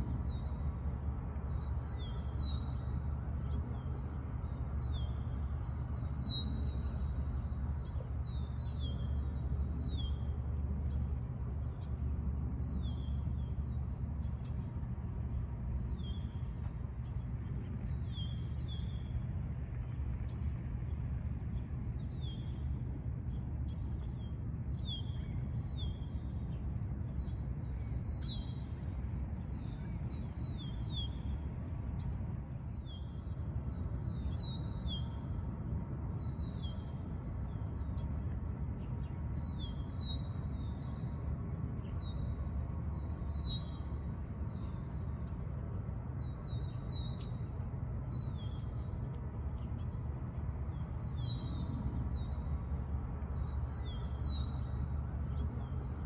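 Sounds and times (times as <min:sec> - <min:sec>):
steady low hum: 0:00.0 - 0:56.0
small birds chirping: 0:29.4 - 0:56.0.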